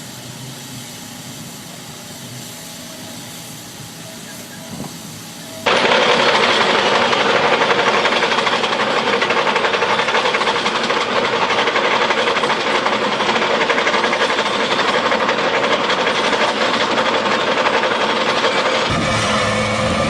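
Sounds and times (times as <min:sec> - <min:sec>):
machinery hiss: 0:00.0 - 0:20.0
heavy machinery clattering: 0:05.7 - 0:20.0.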